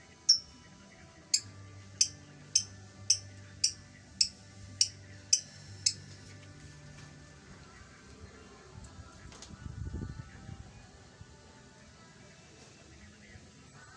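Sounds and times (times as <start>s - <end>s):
bird call notes: 0.3s - 0.5s, 1.3s - 5.5s.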